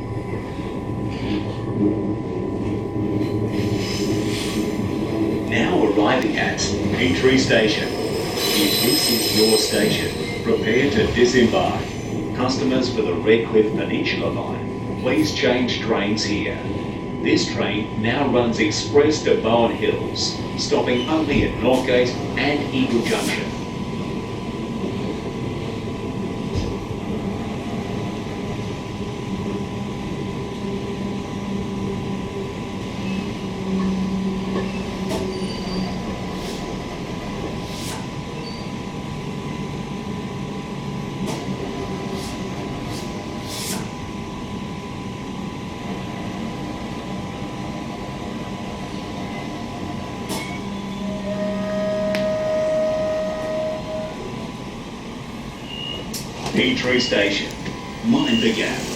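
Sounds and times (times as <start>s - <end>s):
train wheels rumbling on rails: 0.0s - 39.5s.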